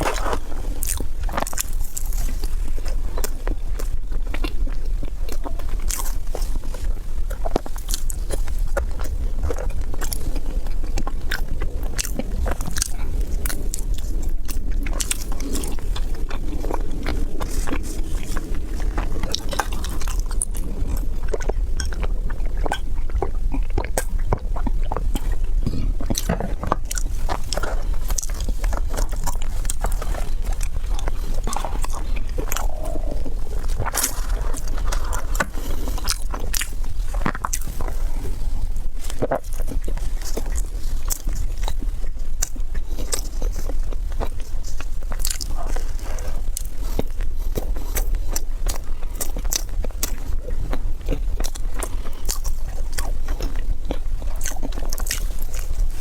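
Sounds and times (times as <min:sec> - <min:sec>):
person biting and chewing crunchily: 0:00.0 - 0:56.0
steady low hum: 0:00.0 - 0:56.0.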